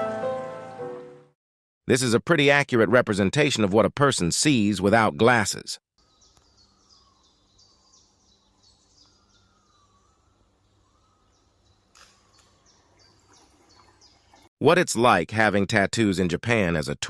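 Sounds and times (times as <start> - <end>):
small high chirp: 6.0 - 14.5.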